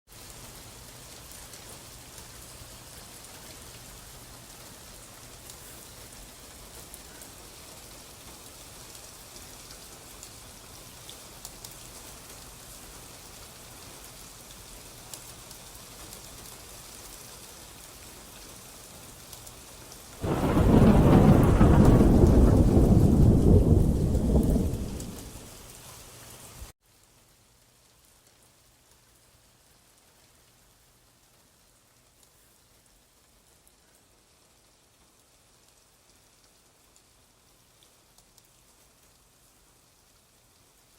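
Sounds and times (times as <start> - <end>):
rain falling: 0.1 - 40.9
thunder rumble: 20.2 - 25.6.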